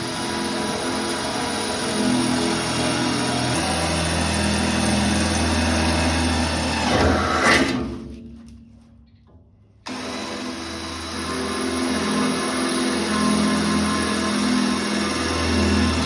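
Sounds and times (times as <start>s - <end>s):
electric power tool running: 0.0s - 7.8s, 9.9s - 16.0s.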